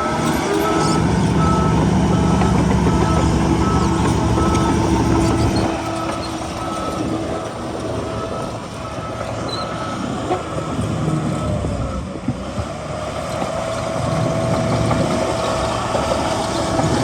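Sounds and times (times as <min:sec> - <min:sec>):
reversing alarm beeping: 0:00.0 - 0:12.0
diesel engine drone: 0:00.0 - 0:17.0.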